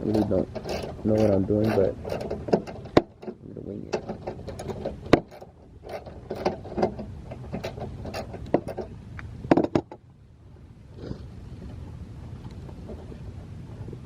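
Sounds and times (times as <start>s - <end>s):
tool clicking and knocking on bolts: 0.0s - 8.9s.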